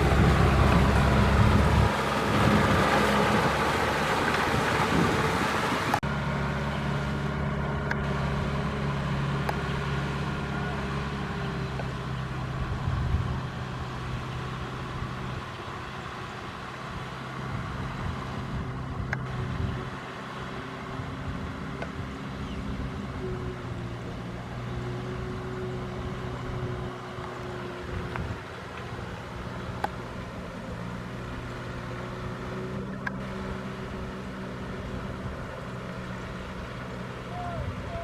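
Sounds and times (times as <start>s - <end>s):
rushing noise: 0.0s - 6.0s
tractor diesel engine running: 0.0s - 38.0s.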